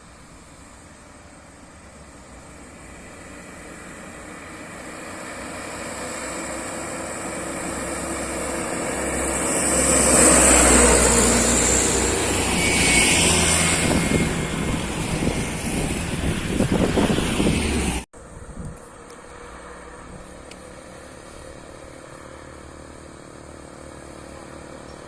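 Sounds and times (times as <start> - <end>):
vehicle passing: 2.9 - 18.1.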